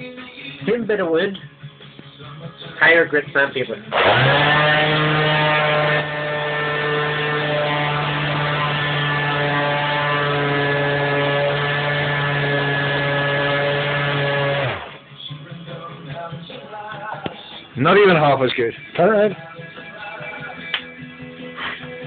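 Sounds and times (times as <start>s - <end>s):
electric sander running on wood: 3.9s - 15.0s
sander motor winding down: 3.9s - 15.0s.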